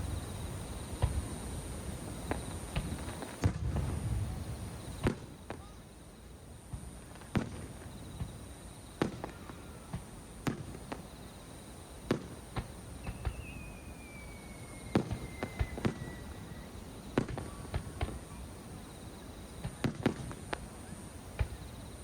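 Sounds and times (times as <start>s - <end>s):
fireworks bursting with sharp bangs: 0.0s - 22.0s
descending firework whistle: 13.0s - 18.4s.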